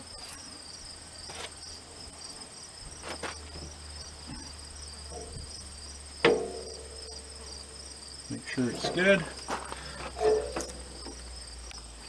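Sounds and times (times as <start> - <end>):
crickets trilling: 0.0 - 12.0
metal clank with ring: 8.6 - 9.3, 10.2 - 11.0.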